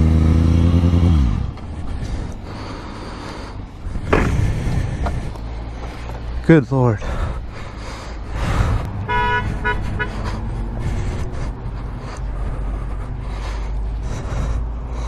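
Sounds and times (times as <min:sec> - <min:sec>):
engine and road rumble: 0:00.0 - 0:15.0
vehicle horn honking: 0:09.0 - 0:10.3.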